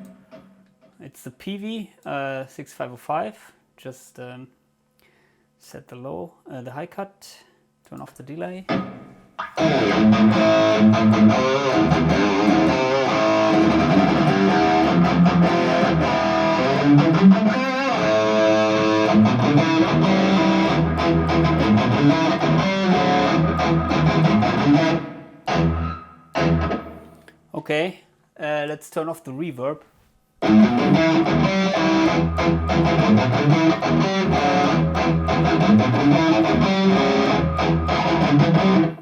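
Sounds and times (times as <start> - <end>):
stabbed guitar chords: 8.7 - 27.1, 30.4 - 39.0
distorted electric guitar playing: 8.7 - 27.2, 30.4 - 39.0.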